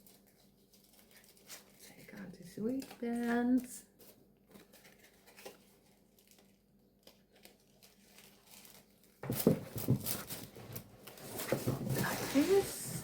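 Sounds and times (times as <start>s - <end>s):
packaging rustling and clicking: 2.7s - 12.7s.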